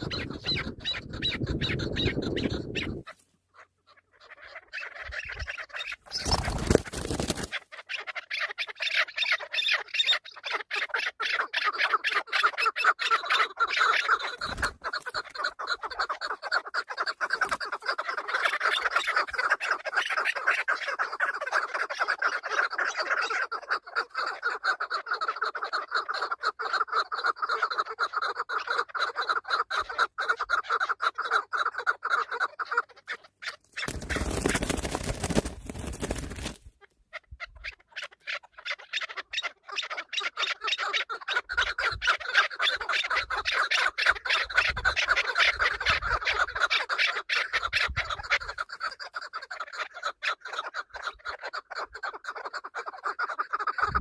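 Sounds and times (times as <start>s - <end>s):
wind rush on microphone: 0.0s - 3.0s.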